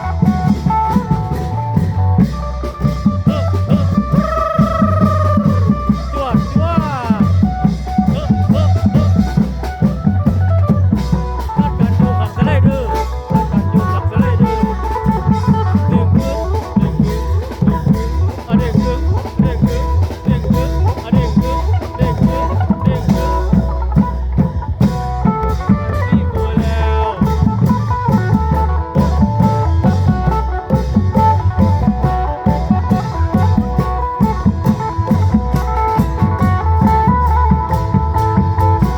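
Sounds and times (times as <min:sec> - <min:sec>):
fast driving drum beat: 0:00.0 - 0:38.9.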